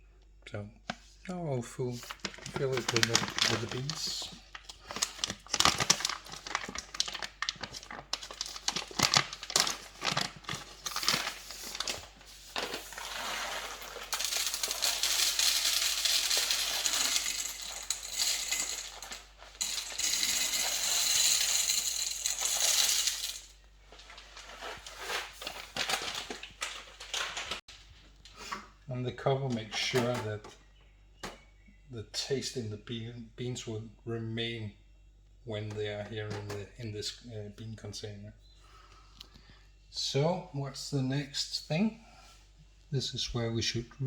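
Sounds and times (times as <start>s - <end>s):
bag crinkling: 2.0s - 27.6s
coffee beans rattling into hopper: 2.2s - 23.6s.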